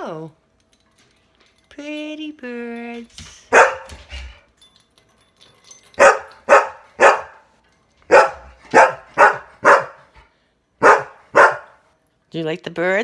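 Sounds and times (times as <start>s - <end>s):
dog barking: 3.5s - 4.1s, 6.0s - 7.5s, 8.1s - 10.2s, 10.8s - 11.8s.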